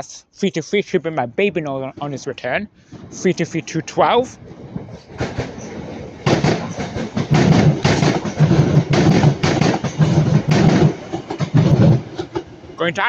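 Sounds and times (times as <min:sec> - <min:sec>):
train wheels clattering over rail joints: 0:04.1 - 0:12.8.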